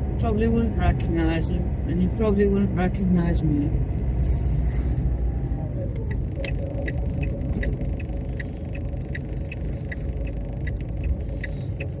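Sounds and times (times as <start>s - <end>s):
car cabin rumble: 0.0s - 12.0s
turn signal ticking: 0.0s - 12.0s.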